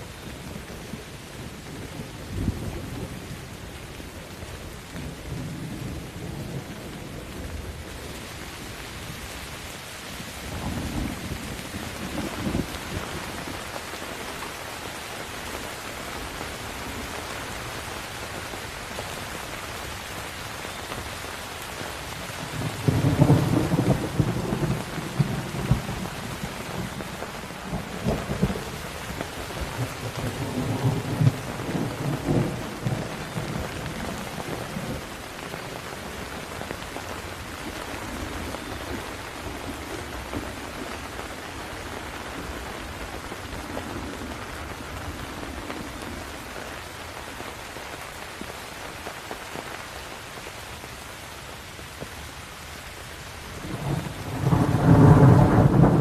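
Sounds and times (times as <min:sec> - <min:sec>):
steady rain: 0:00.0 - 0:56.0
thunder rumbling and cracking: 0:10.3 - 0:13.6, 0:22.4 - 0:41.1, 0:53.5 - 0:56.0.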